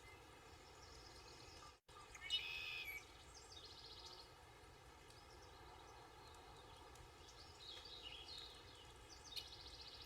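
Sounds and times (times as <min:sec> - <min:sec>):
bird trill: 0:02.1 - 0:03.0
small birds chirping: 0:05.0 - 0:10.0.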